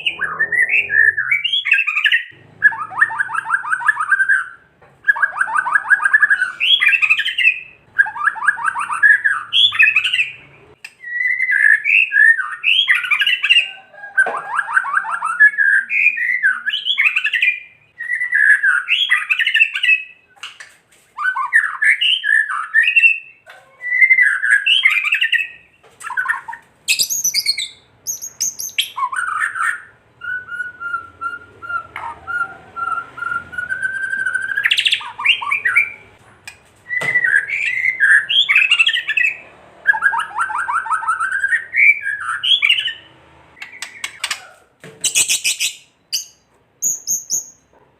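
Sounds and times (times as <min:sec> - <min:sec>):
bird rattling song: 0:43.6 - 0:47.6.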